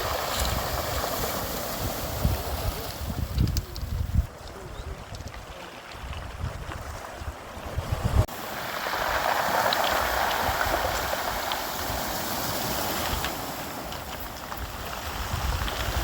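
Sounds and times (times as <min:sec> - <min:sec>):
sea surf rushing: 0:00.0 - 0:03.6, 0:07.2 - 0:16.0
wind buffeting microphone: 0:00.0 - 0:16.0.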